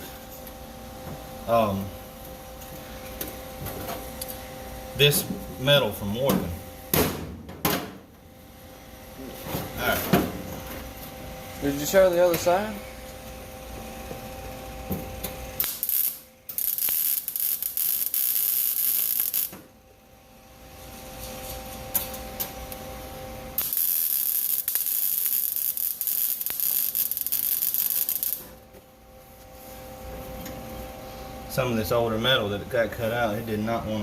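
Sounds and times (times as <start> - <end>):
steady hum: 0.0 - 34.0
welder arc crackling: 15.6 - 19.6, 23.6 - 28.6.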